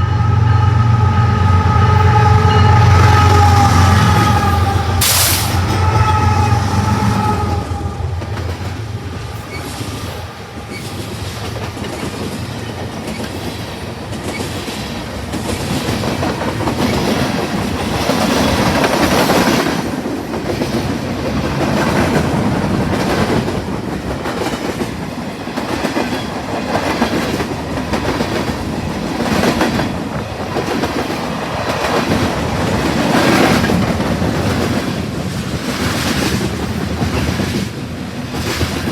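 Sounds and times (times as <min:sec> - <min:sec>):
train horn: 0:00.0 - 0:11.2
freight train rumbling: 0:00.0 - 0:38.9.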